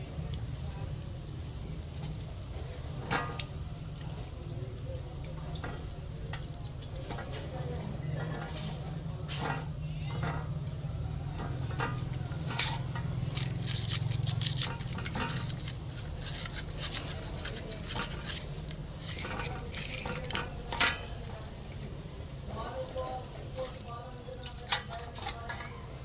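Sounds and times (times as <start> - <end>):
metal tools clinking and scraping: 11.3 - 21.2.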